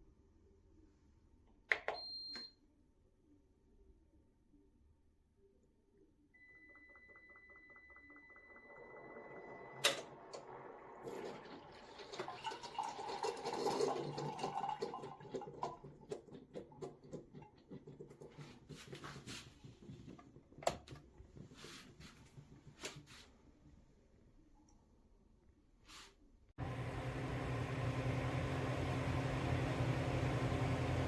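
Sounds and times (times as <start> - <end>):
steady electronic tone: 6.4 - 11.0.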